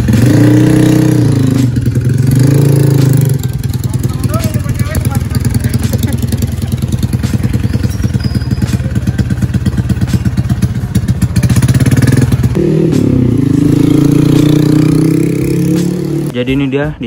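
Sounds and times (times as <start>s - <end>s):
motorcycle engine idling: 0.0s - 15.7s.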